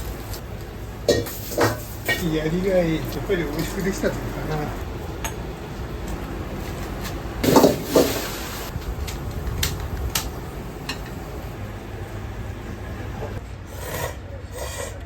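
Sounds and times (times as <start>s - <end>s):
steady low hum: 0.0s - 15.0s
dishes and utensils clattering: 1.1s - 2.2s, 7.4s - 8.4s.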